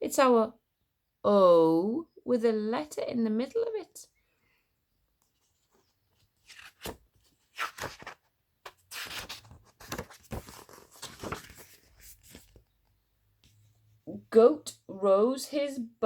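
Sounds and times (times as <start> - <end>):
paper pages rustling: 5.2 - 12.8.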